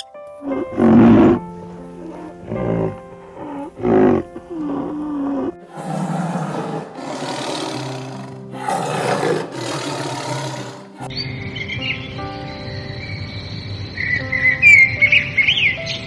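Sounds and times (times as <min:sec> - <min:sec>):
background music: 0:00.0 - 0:16.0
tiger growl: 0:00.4 - 0:11.1.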